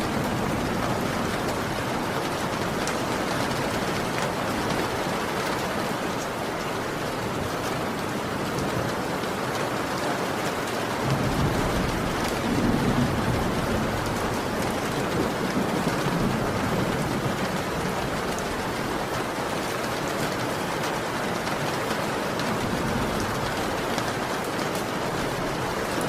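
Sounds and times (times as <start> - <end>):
rolling thunder: 0.0 - 5.2, 11.0 - 19.2
heavy rain: 0.0 - 26.0.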